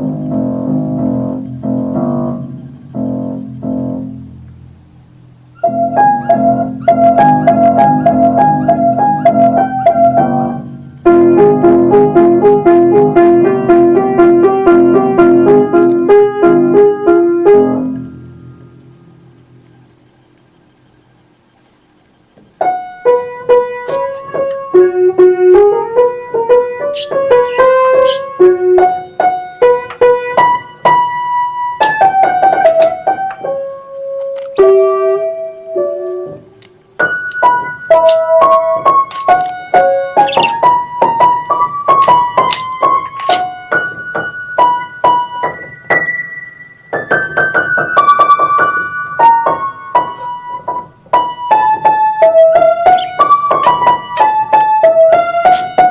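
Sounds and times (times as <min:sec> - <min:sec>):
piano melody: 0:00.0 - 0:55.9.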